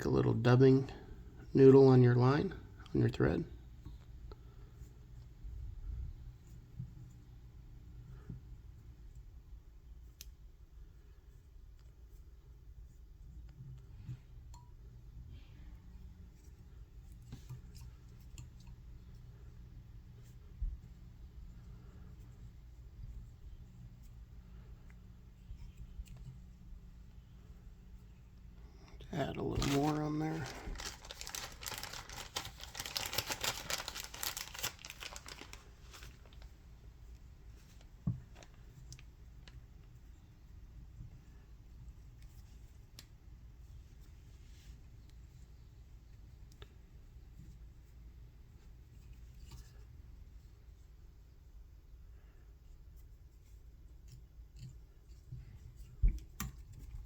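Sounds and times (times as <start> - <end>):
low room hum: 0.0 - 57.0
crinkling and tearing fibres: 29.1 - 36.6.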